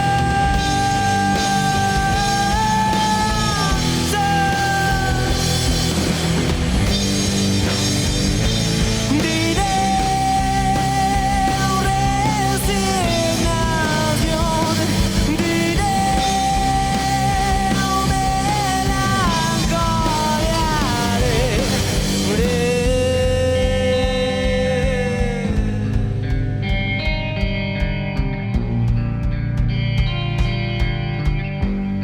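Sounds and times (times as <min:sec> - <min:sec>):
distorted rock band playing: 0:00.0 - 0:32.0
sliding lead guitar notes: 0:20.7 - 0:32.0.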